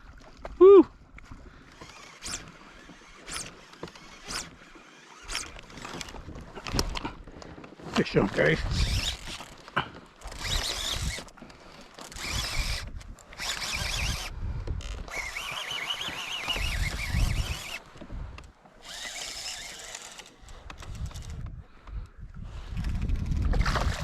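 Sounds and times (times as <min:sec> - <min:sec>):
fishing reel gears whirring: 0:01.6 - 0:07.3, 0:08.4 - 0:18.0, 0:18.8 - 0:21.4.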